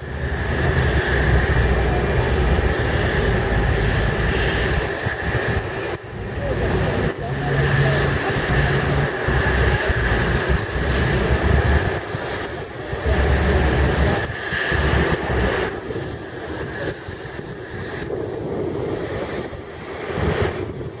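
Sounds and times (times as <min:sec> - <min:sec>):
low buffeting: 0:00.0 - 0:16.1
jet engines running: 0:00.0 - 0:21.0.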